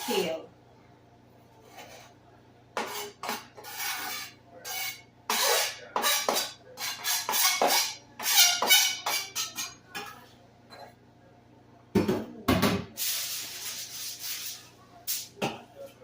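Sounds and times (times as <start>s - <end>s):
utensil scraping against a dish: 1.6s - 2.2s, 2.8s - 9.8s.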